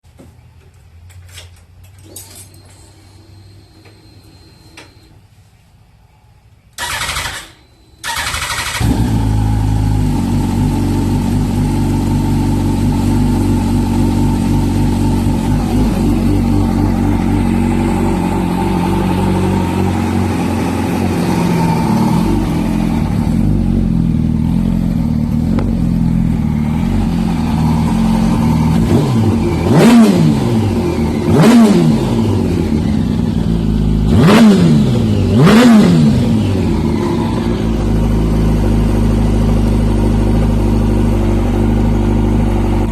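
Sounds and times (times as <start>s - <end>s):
electric starter cranking: 6.8s - 9.2s
motorcycle engine idling: 8.0s - 34.1s, 36.2s - 42.9s.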